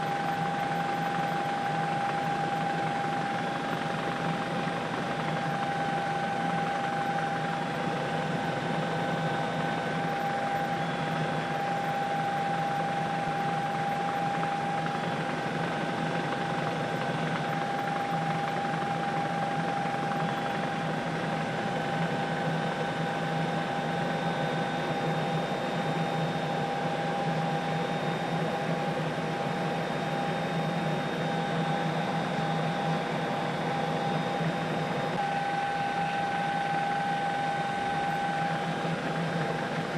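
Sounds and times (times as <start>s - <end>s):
helicopter cabin noise: 0.0s - 39.9s.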